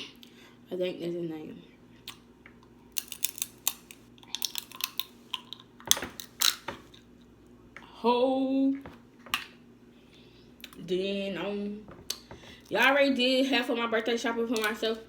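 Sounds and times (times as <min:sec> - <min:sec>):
crab shells cracking: 0:02.1 - 0:07.1.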